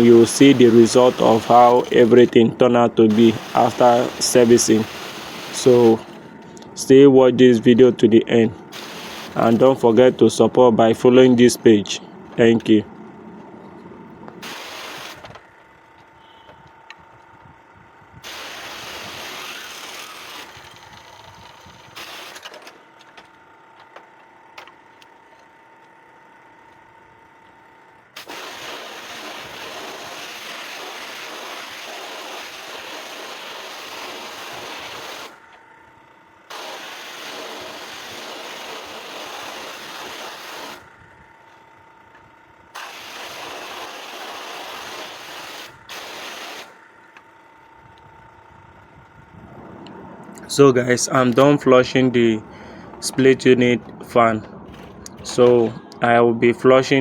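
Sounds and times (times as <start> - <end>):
water jet hissing on a fan: 0.0 - 7.0, 8.7 - 10.3, 14.4 - 15.4, 18.2 - 22.5, 28.2 - 35.5, 36.5 - 40.9, 42.8 - 46.8.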